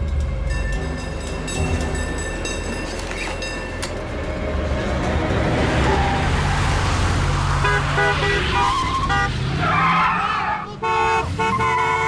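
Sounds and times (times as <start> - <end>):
car horn toots: 7.6 - 9.5, 10.5 - 12.0
long car horn blast: 10.7 - 12.0.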